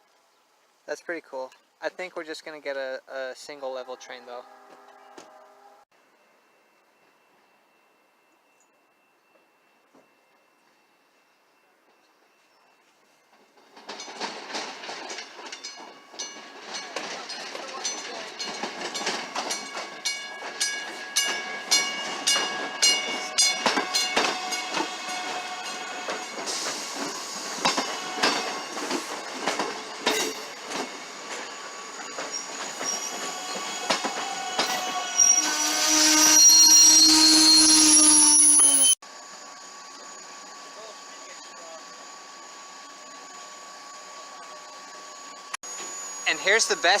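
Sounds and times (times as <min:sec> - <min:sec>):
wheels clicking over rail joints: 0:13.3 - 0:25.4
high wheel squeal: 0:21.7 - 0:39.0.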